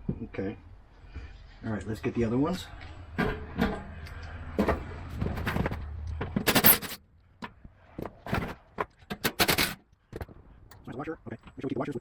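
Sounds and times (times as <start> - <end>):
hand tools scraping on sheet metal: 6.5 - 7.0.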